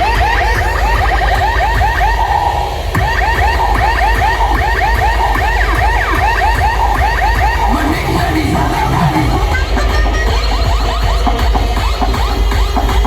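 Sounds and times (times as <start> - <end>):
rising electronic siren chirps: 3.0 - 9.7
deep bass: 5.0 - 11.9.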